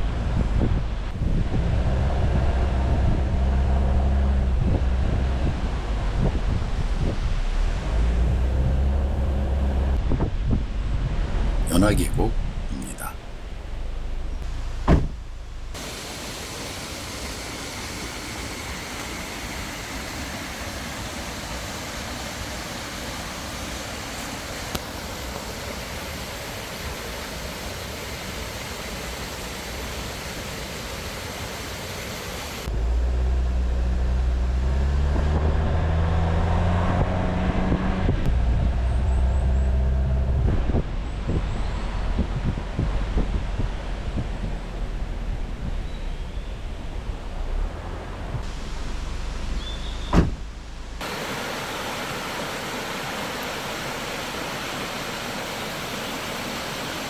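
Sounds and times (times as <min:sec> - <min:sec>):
vehicle engine accelerating: 0:00.0 - 0:11.7, 0:32.6 - 0:51.0
steady rushing hiss: 0:15.7 - 0:32.7, 0:50.3 - 0:57.0.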